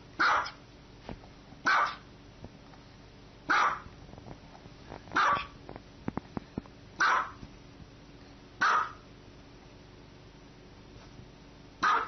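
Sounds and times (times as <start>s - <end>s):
small dog barking: 0.2s - 0.6s, 1.6s - 2.1s, 3.5s - 3.9s, 5.2s - 5.6s, 7.0s - 7.4s, 8.6s - 9.1s, 11.8s - 12.0s.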